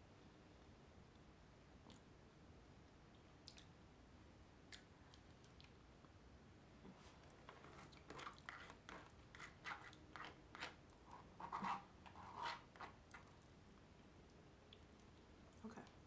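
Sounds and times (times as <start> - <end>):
utensil scraping plastic bowl: 7.5 - 13.0.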